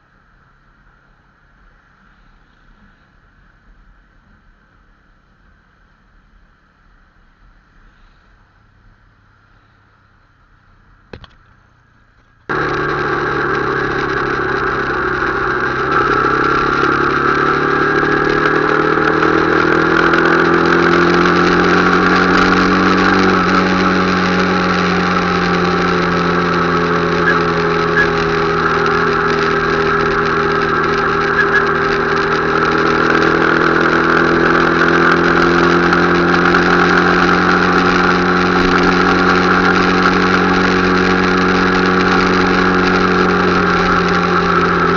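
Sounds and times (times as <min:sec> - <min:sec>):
motorcycle engine running: 0:12.4 - 0:44.9.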